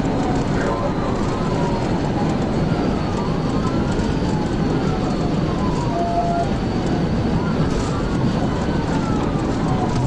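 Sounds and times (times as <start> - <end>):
police siren wailing: 0.0 - 10.0
road and engine noise: 0.0 - 10.0.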